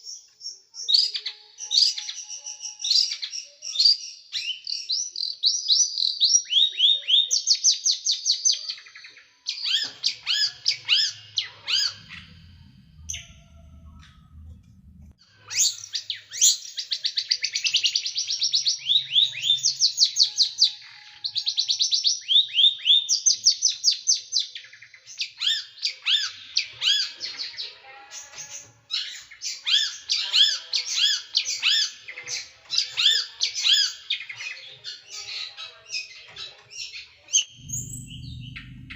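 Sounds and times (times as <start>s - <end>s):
songbird chirping rapidly: 0.0s - 27.1s, 29.1s - 38.9s
faint low rumble: 11.7s - 15.2s, 37.5s - 38.9s.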